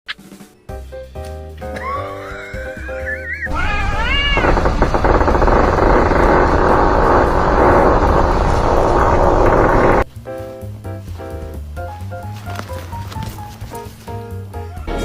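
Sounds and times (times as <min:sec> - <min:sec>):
cat meowing: 0:01.8 - 0:04.6
loud rough noise: 0:03.5 - 0:10.0.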